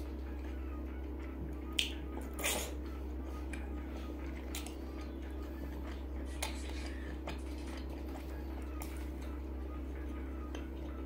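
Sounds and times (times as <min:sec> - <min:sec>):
steady low hum: 0:00.0 - 0:11.0
mouth clicks and smacks chewing: 0:01.7 - 0:02.7, 0:03.5 - 0:09.3
wet bite and smack: 0:01.7 - 0:02.7, 0:04.5 - 0:04.8.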